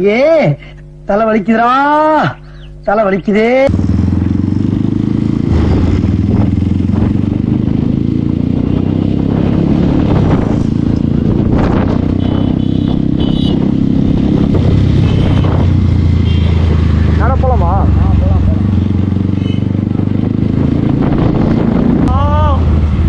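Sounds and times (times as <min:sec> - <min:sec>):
motorcycle engine idling: 0:03.7 - 0:05.3, 0:15.0 - 0:20.2.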